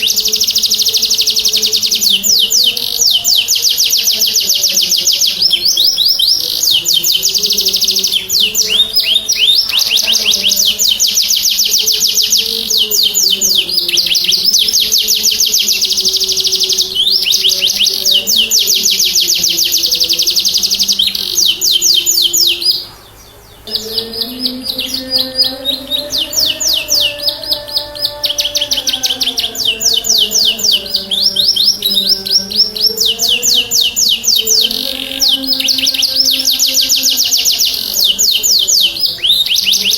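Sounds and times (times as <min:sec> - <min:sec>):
canary singing rapid trills: 0:00.0 - 0:39.9.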